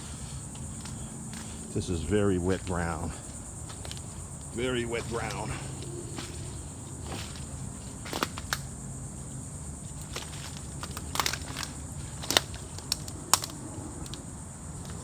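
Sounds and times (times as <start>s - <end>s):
footsteps through brush: 0.0s - 8.8s
twigs snapping: 3.6s - 8.8s, 9.9s - 15.0s.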